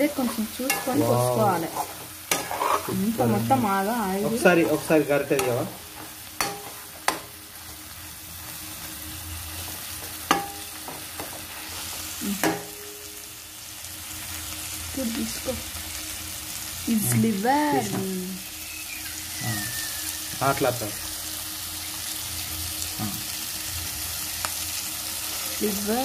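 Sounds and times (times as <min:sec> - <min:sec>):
liver sizzling in oil: 0:00.0 - 0:26.0.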